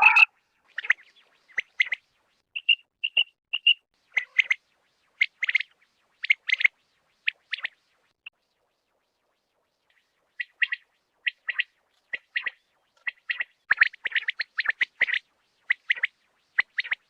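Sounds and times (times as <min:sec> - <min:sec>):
quail calling: 0:00.0 - 0:00.3.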